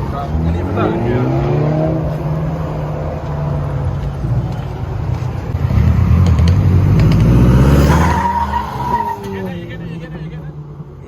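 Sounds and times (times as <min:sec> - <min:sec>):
car engine revving past: 0:00.2 - 0:04.0, 0:05.5 - 0:08.9.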